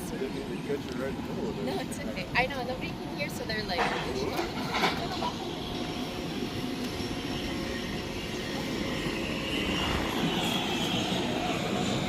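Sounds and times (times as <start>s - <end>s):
aircraft engine drone: 0.0s - 12.0s
turbine whine: 0.0s - 12.0s.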